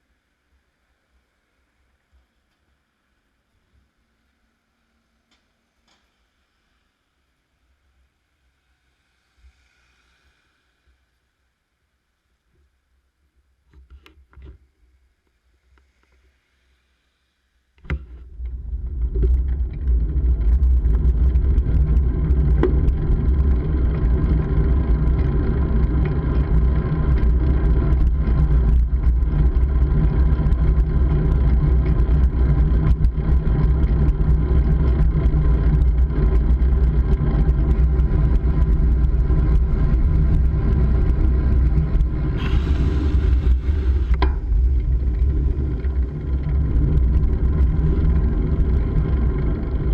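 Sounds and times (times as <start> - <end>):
wind and road rumble: 17.9 - 49.9.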